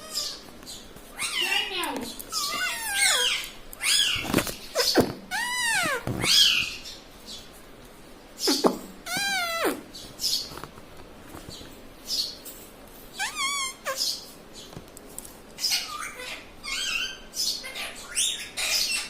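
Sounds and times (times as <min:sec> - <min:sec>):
parakeet squawking calls: 0:00.0 - 0:00.5, 0:01.2 - 0:07.0, 0:08.4 - 0:10.4, 0:13.2 - 0:14.3, 0:15.6 - 0:19.0.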